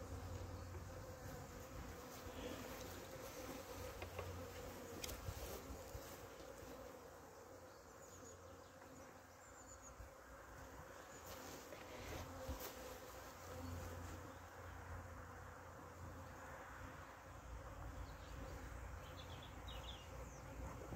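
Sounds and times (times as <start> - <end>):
honeybees buzzing: 0.0 - 20.9.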